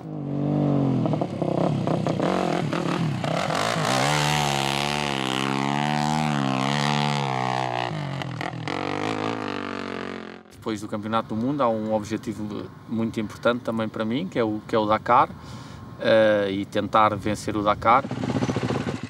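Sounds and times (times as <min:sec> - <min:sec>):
motorcycle engine revving: 0:00.0 - 0:10.5, 0:17.9 - 0:19.0.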